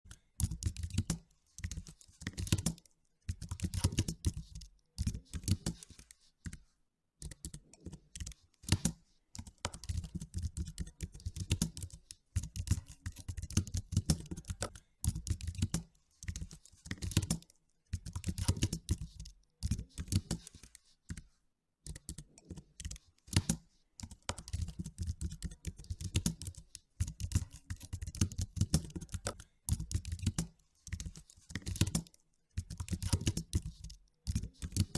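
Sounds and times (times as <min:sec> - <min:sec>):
typing on computer keyboard: 0:00.1 - 0:06.6, 0:07.2 - 0:34.9.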